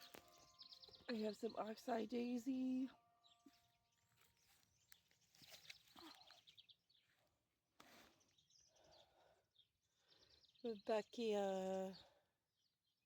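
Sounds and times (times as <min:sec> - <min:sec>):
distant birds chirping: 0:00.0 - 0:13.0
brief rustle: 0:04.9 - 0:06.4.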